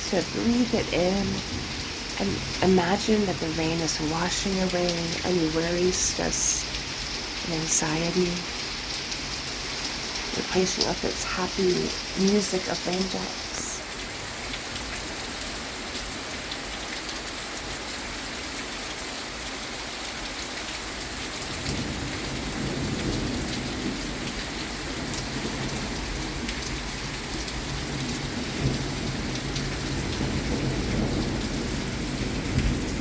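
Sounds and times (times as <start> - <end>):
rain pattering: 0.0 - 33.0
rolling thunder: 21.4 - 33.0.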